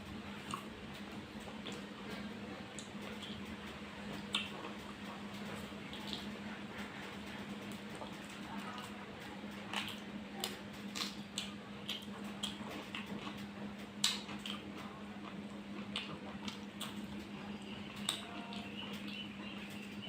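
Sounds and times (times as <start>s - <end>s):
wet eating squishes: 4.2s - 7.0s, 7.6s - 17.3s.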